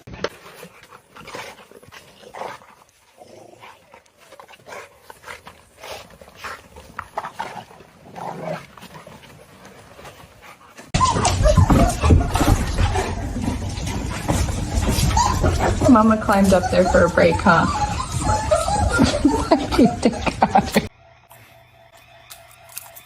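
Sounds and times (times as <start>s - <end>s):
dog panting: 0.4s - 7.9s, 8.8s - 20.9s
dog whimpering: 11.0s - 13.6s, 14.3s - 20.9s.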